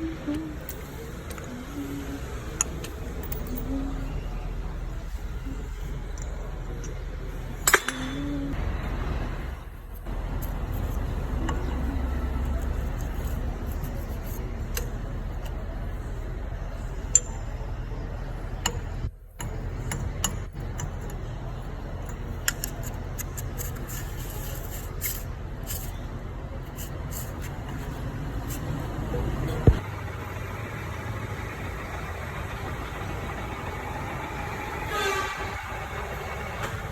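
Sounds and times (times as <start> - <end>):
low machine hum: 0.0 - 22.3
sharp metallic clicks: 7.7 - 8.3.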